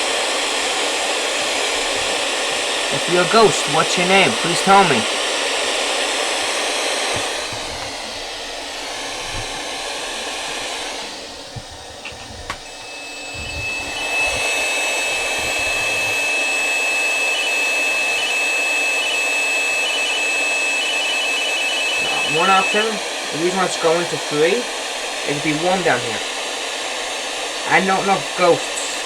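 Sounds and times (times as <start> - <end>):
radio static hiss: 0.0 - 29.0
thin high steady tone: 11.6 - 26.3.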